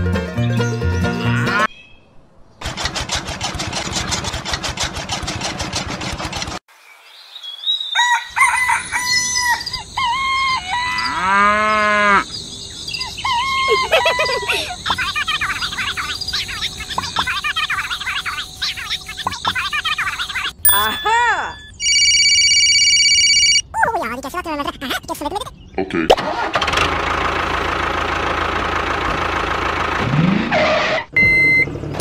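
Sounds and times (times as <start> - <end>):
rooster crowing: 7.9 - 12.3
small birds chirping: 9.1 - 21.8.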